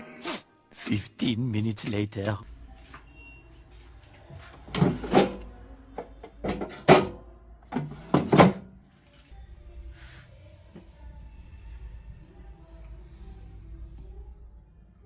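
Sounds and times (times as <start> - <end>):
faint background music: 0.0 - 15.0
cookware and utensils clattering: 4.4 - 8.7.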